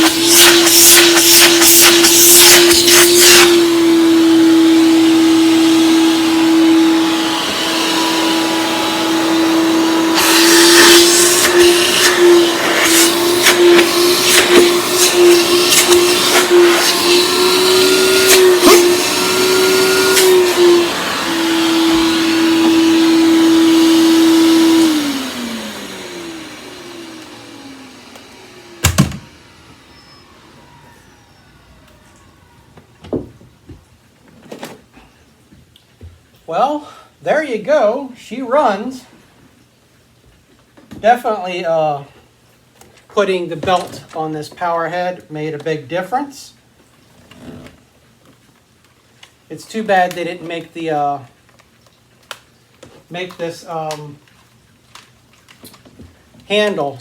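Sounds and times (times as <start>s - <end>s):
vacuum motor winding down: 0.0s - 33.1s
vacuum cleaner running: 0.0s - 33.8s.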